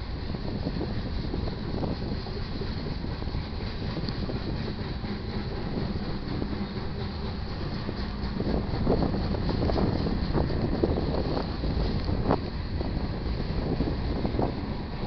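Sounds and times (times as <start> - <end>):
train rumbling past: 0.0 - 15.0
train wheels clanking: 0.0 - 15.0.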